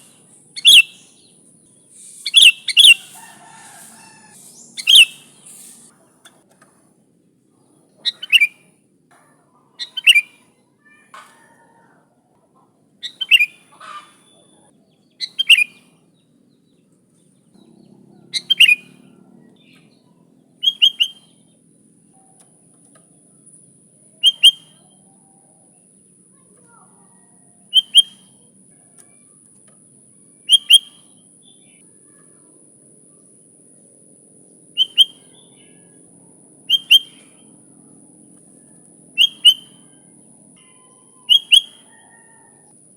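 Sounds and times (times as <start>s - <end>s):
bird short sharp calls: 0.0s - 1.3s, 1.9s - 5.9s, 34.8s - 35.8s, 36.7s - 37.4s, 39.2s - 39.8s, 40.6s - 42.3s.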